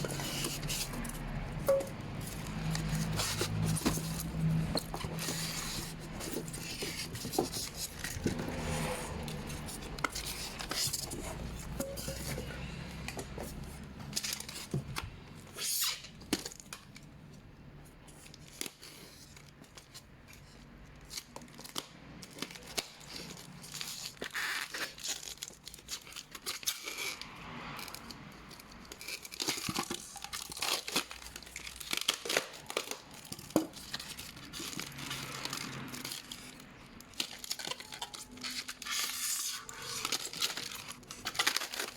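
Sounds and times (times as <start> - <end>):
packaging tearing and crinkling: 0.0 - 12.2, 18.3 - 41.9
box handling clicks and knocks: 0.0 - 15.1.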